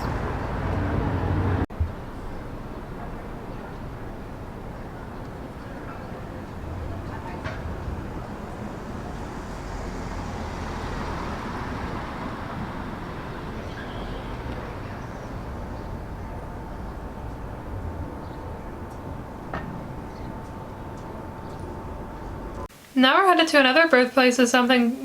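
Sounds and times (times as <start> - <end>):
rumble of passing vehicles: 0.0 - 22.7.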